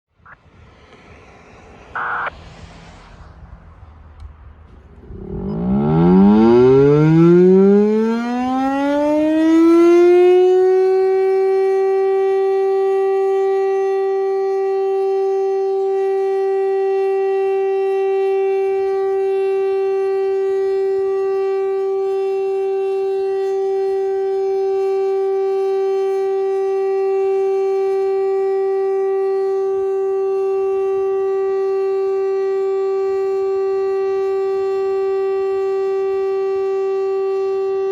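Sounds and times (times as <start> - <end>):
warning siren winding up: 5.0 - 37.9.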